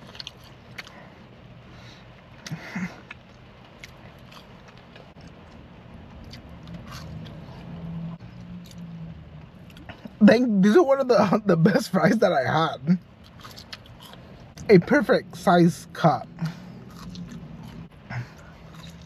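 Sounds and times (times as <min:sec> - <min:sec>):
person chewing food: 0:00.0 - 0:01.1, 0:02.2 - 0:10.2, 0:13.1 - 0:14.7, 0:16.4 - 0:19.0
low steady hum: 0:00.0 - 0:19.0.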